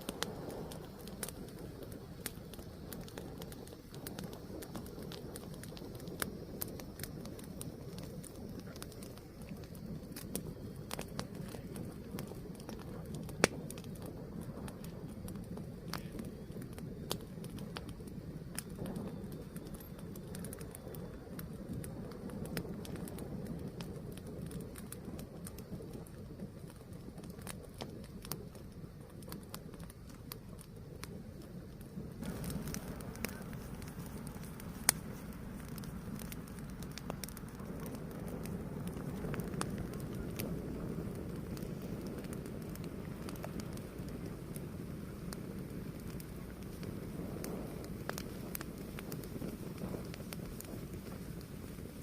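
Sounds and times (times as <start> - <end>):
fire crackles and pops: 0.0 - 52.0
fire rumbling: 0.0 - 52.0.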